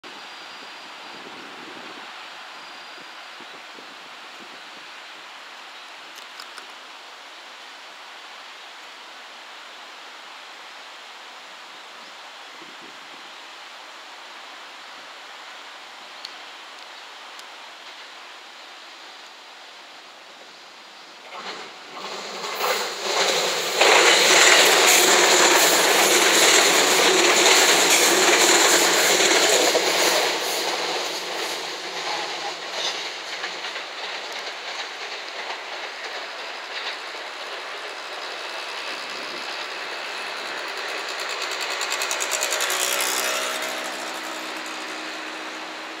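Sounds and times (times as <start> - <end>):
train rumbling on rails: 19.8 - 46.0
train wheels clicking: 21.3 - 46.0.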